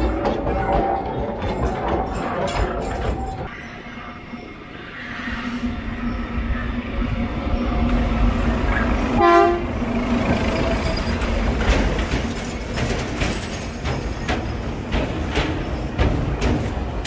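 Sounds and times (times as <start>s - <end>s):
wheels clattering over rail joints: 0.0s - 3.5s, 10.1s - 17.0s
train rumbling: 0.0s - 17.0s
train horn blast: 9.2s - 9.8s.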